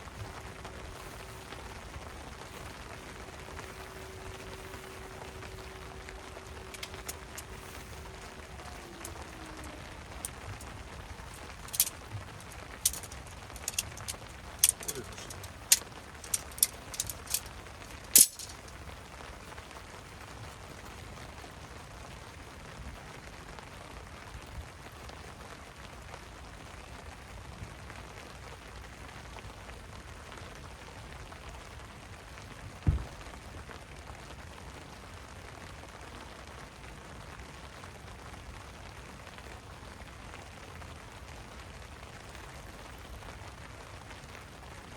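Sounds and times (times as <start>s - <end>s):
rain falling: 0.0s - 44.9s
sharp clinks: 3.5s - 18.7s
low thump: 32.9s - 33.2s.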